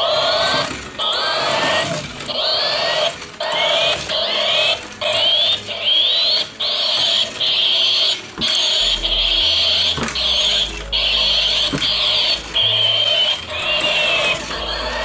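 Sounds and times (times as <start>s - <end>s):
repeating electronic sound: 3.6s - 15.0s
steady high tone: 4.1s - 15.0s.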